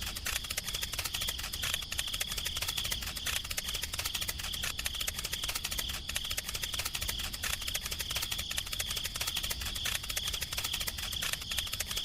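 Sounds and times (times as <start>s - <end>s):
fast clicking rattle: 0.0s - 12.0s.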